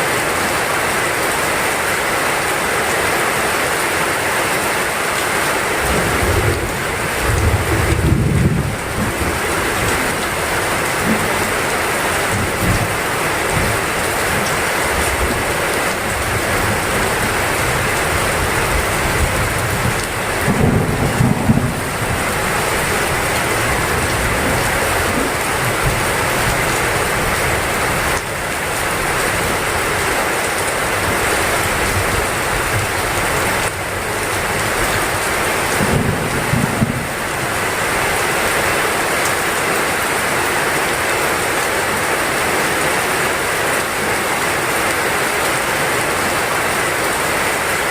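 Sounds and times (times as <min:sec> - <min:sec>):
heavy rain: 0:00.0 - 0:47.9
rolling thunder: 0:06.1 - 0:10.4, 0:18.8 - 0:26.0, 0:35.7 - 0:37.2.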